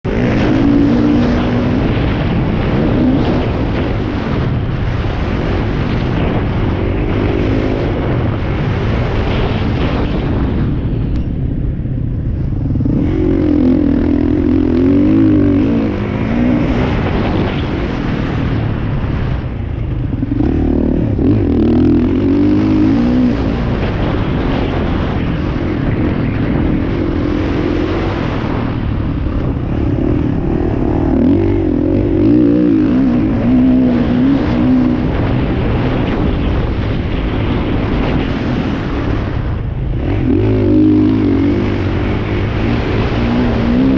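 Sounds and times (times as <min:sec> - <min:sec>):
motocross bike engines revving: 0:00.0 - 0:10.8, 0:12.1 - 0:43.9.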